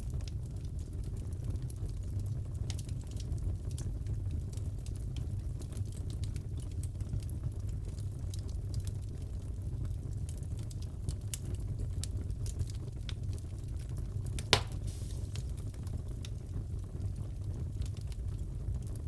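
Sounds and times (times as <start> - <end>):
wood fire crackling: 0.0 - 19.0
sharp loud pop: 14.4 - 15.4.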